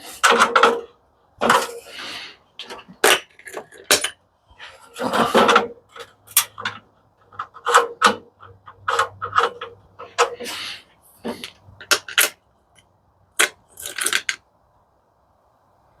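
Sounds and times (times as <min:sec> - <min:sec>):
metal scraping: 0:00.0 - 0:12.4
metal parts clicking and knocking: 0:00.1 - 0:02.0, 0:02.6 - 0:04.2, 0:04.8 - 0:10.6, 0:11.2 - 0:12.4, 0:13.4 - 0:14.4.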